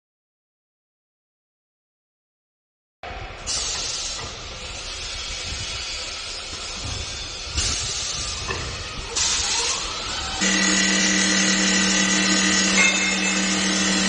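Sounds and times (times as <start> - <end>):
wood lathe hissing: 9.0 - 14.0.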